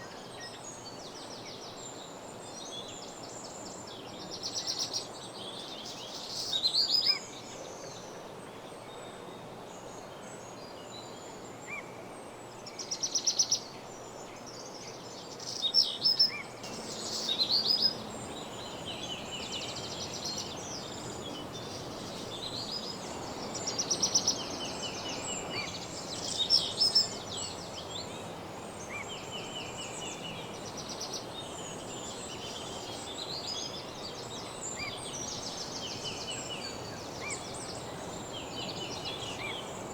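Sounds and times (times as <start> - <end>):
steady background hiss: 0.0 - 39.9
songbirds singing: 12.7 - 39.9.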